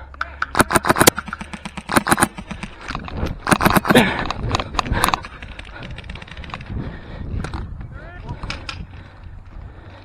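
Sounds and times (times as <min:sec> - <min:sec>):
airsoft guns firing: 0:00.5 - 0:06.7.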